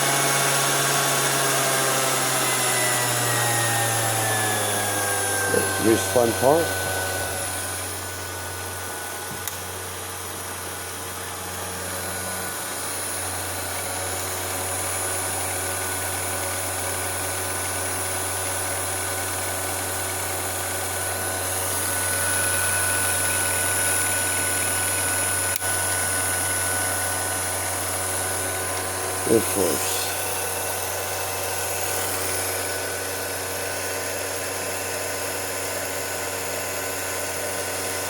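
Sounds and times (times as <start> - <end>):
film projector whirring: 0.0 - 38.0
small click: 9.3 - 9.7.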